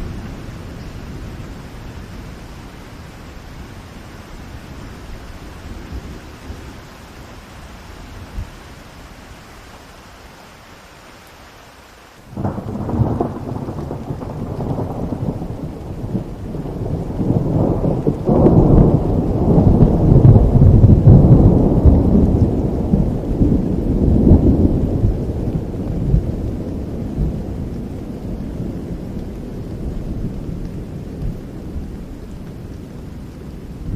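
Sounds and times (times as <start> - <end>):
steady rain: 0.0 - 33.9
thunderclap: 12.3 - 31.4
deep thunder rumble: 12.3 - 33.9.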